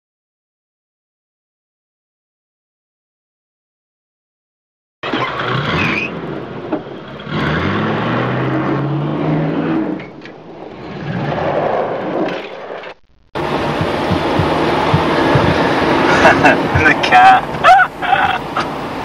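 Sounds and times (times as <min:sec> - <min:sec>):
car engine accelerating: 0:05.0 - 0:12.2, 0:13.4 - 0:19.0.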